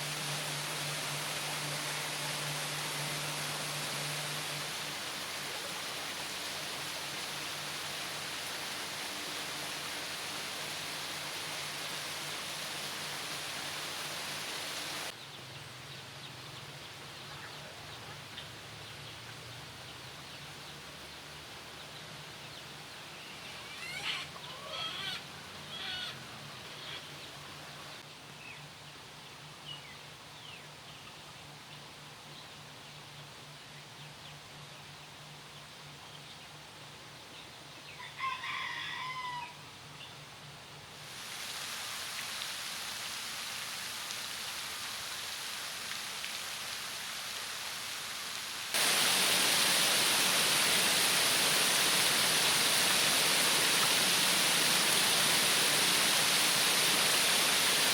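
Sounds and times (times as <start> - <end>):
running water: 0.0 - 15.2, 41.0 - 57.9
outdoor ambience: 0.0 - 57.9
bird calling: 23.3 - 27.2.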